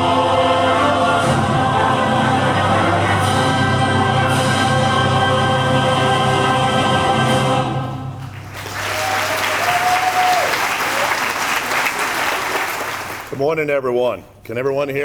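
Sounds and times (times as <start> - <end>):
group singing a song: 0.0 - 8.4
audience applauding: 8.2 - 13.4.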